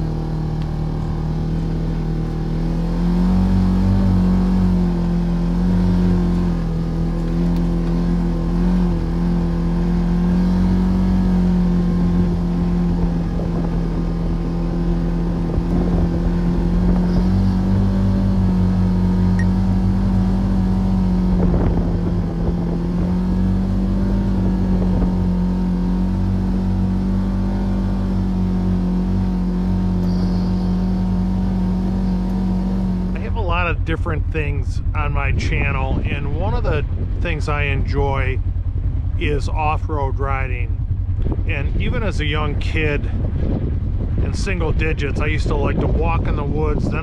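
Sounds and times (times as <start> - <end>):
vehicle pushing through snow: 0.0 - 34.2
vehicle engine running steadily: 0.0 - 47.0.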